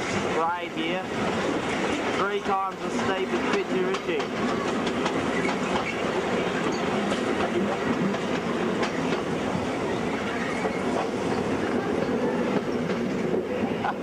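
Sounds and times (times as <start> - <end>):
train rumbling: 0.0 - 14.0
wheels clicking on rails: 0.0 - 14.0.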